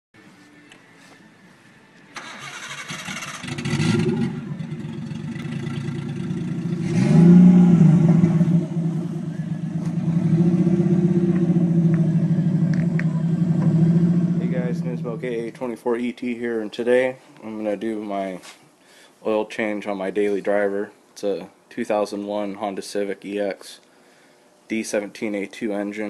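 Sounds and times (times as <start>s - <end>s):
car engine starting and idling: 2.2s - 15.7s.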